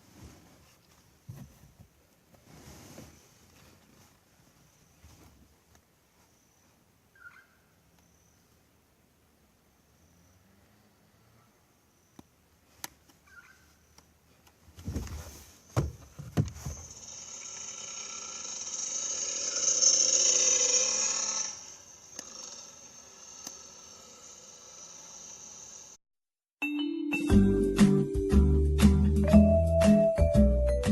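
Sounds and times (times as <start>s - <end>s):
heavy thumps: 14.8s - 17.0s
engine whine: 16.7s - 26.0s.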